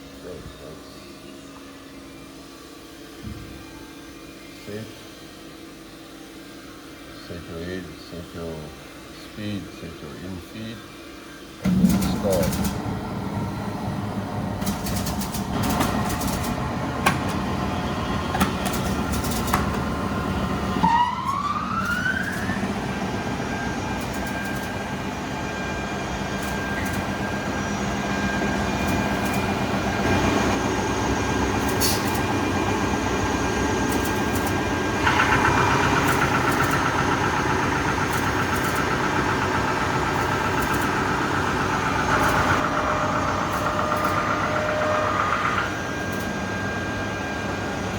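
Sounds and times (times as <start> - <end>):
belt sander whining and humming: 12.8 - 47.9.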